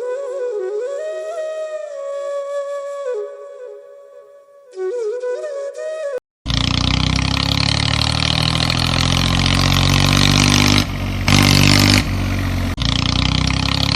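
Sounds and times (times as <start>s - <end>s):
vehicle engine running: 6.5s - 13.9s.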